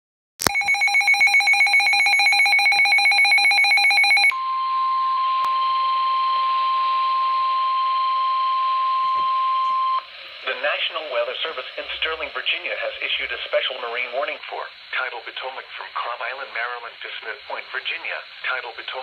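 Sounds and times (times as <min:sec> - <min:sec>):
steady alarm tone: 0:00.4 - 0:10.2.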